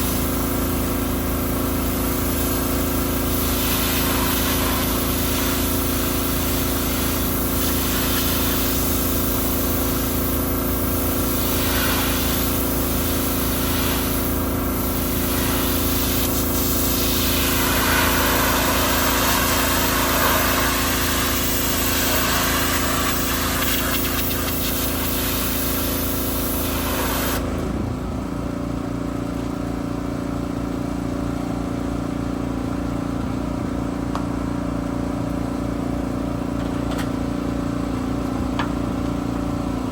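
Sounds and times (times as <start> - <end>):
high-pressure water spray hiss: 0.0 - 27.5
pressure washer engine running: 0.0 - 39.9.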